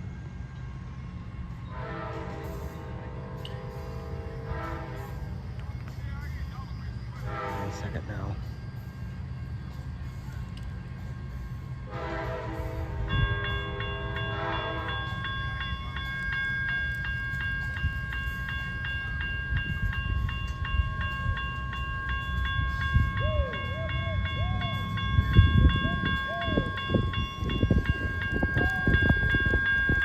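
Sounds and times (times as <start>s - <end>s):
low rumble of train: 0.0s - 30.0s
railroad crossing bell ringing: 0.0s - 30.0s
train horn: 1.6s - 5.3s, 7.2s - 8.1s, 11.8s - 15.1s.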